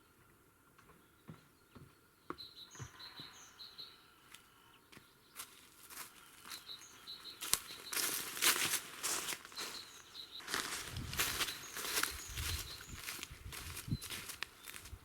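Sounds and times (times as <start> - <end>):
small birds chirping: 0.0 - 15.0
footsteps crunching on forest litter: 4.3 - 15.0.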